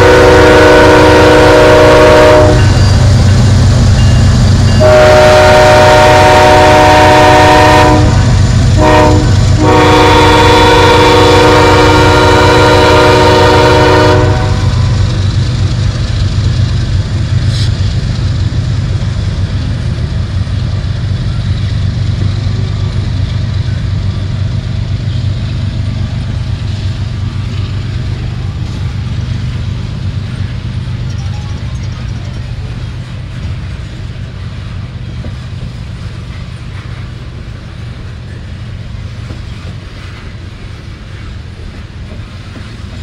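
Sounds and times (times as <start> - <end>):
locomotive horn: 0.0 - 2.8, 4.8 - 15.2
locomotive engines rumbling: 0.0 - 43.0.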